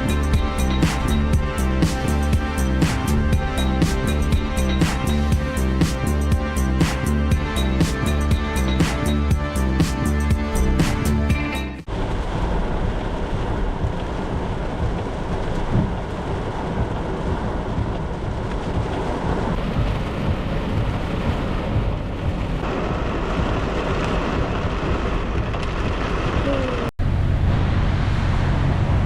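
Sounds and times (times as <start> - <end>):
heavy rain: 0.0 - 9.8, 10.4 - 29.0
background music: 0.0 - 11.9
low continuous rumble: 11.9 - 29.0.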